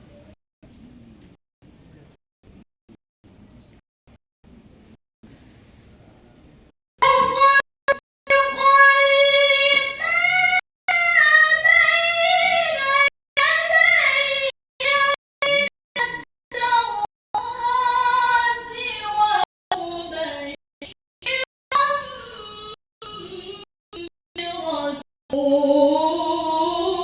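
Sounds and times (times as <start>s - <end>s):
woman reciting melodically: 7.0s - 27.0s.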